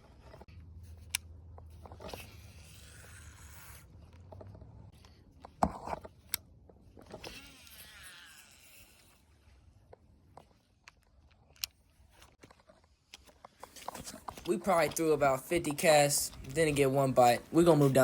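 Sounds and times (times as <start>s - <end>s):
fishing reel whirring: 7.0s - 9.5s.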